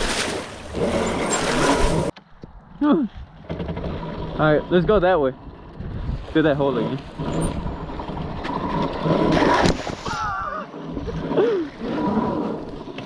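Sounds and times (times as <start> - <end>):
muddy water splashing: 0.0 - 2.1.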